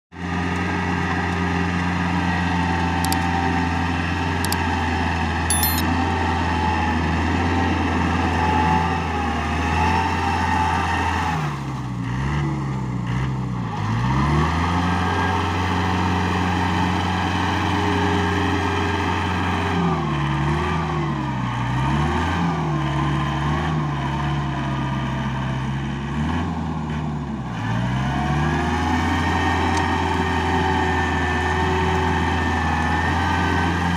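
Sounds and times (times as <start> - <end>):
tractor diesel engine running: 0.2 - 5.4.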